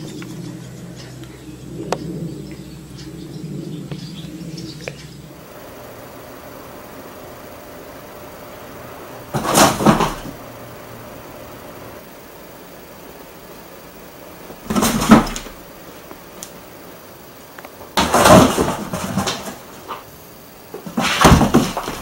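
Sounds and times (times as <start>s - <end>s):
cat thumping and scrabbling in box: 9.3s - 10.4s, 14.6s - 15.6s, 18.0s - 20.0s, 20.8s - 22.0s.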